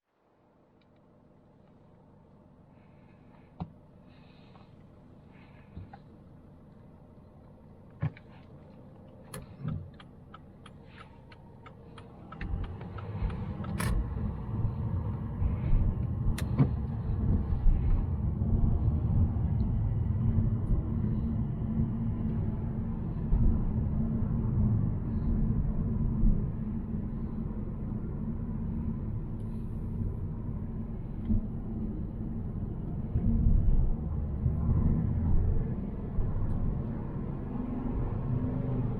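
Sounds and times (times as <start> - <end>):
car engine rumbling: 0.4 - 38.9
evenly spaced ticks: 9.1 - 13.8.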